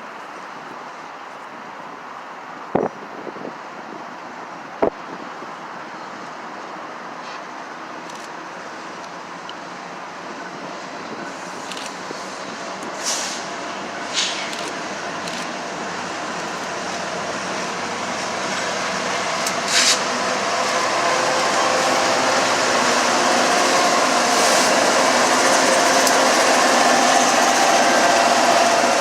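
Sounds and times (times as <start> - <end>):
train wheels on rail: 4.8 - 29.0
short hisses: 13.0 - 13.5, 14.1 - 14.5, 19.7 - 20.1.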